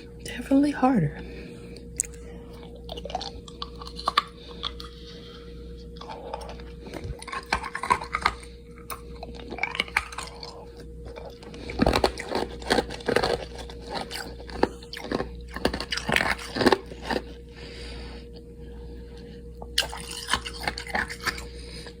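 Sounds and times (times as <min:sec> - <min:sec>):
ice cubes crunching between teeth: 0:02.0 - 0:05.0, 0:06.0 - 0:17.4, 0:19.6 - 0:21.6.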